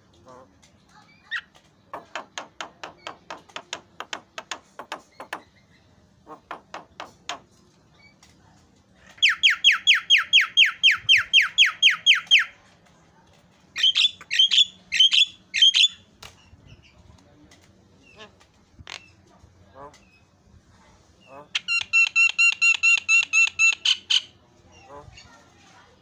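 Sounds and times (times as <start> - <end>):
bird harsh squawks: 13.8 - 16.0.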